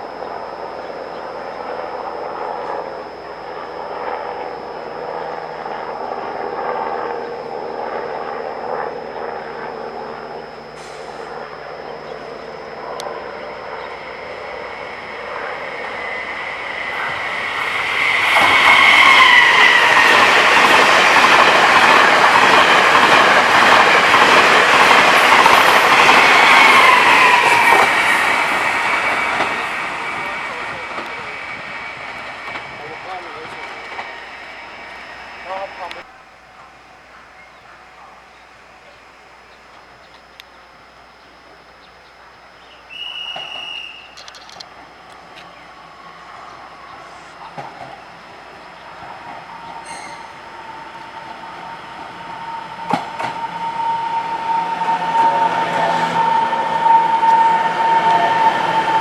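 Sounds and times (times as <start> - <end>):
high wheel squeal: 0.0 - 36.0, 42.6 - 44.6, 45.3 - 59.0
train rumbling: 0.0 - 59.0
wheels clacking on rails: 11.8 - 37.9, 43.2 - 59.0.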